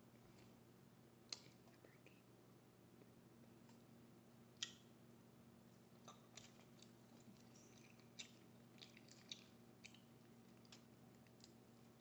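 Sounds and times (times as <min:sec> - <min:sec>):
wet mouth chewing sounds: 0:06.0 - 0:12.0.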